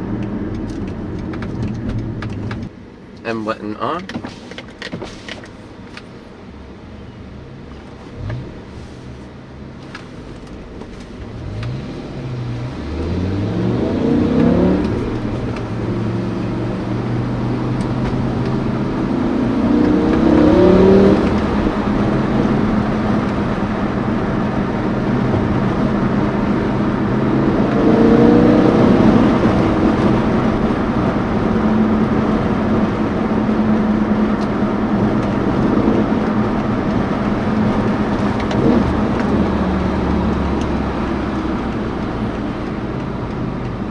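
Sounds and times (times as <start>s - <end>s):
car engine revving from inside: 11.0s - 43.9s.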